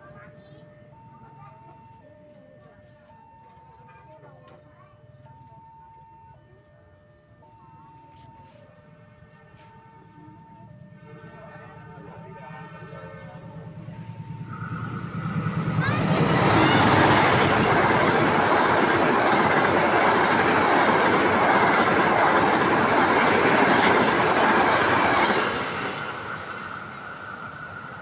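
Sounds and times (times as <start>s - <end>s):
passenger train passing: 7.9s - 28.0s.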